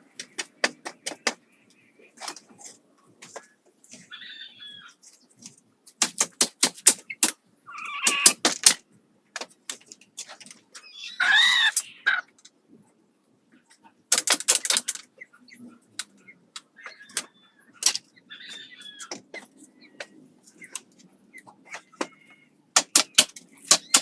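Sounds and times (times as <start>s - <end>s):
chickens squawking: 3.3s - 5.3s, 7.0s - 8.4s, 10.8s - 12.4s, 15.1s - 22.6s.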